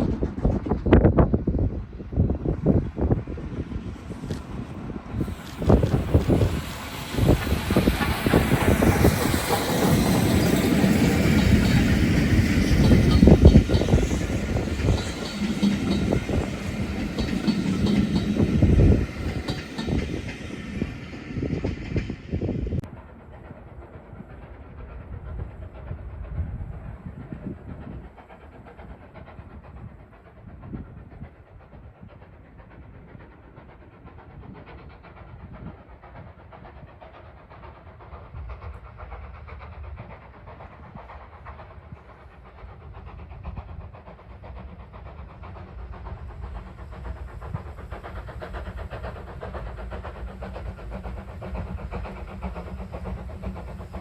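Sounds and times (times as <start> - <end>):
steam hiss: 0.0 - 54.0
steam locomotive rumble: 0.0 - 54.0
wheels clicking over rail joints: 5.2 - 20.4.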